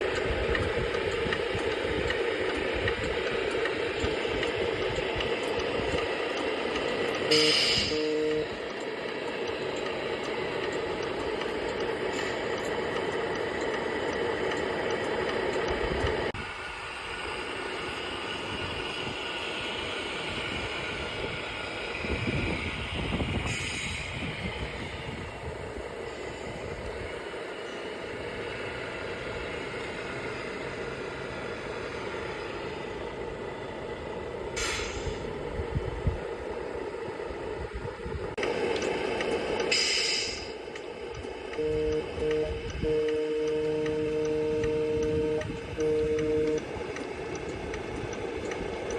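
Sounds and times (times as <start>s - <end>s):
air brake hiss: 7.3s - 8.1s, 23.4s - 24.4s, 34.6s - 35.4s, 39.7s - 40.6s.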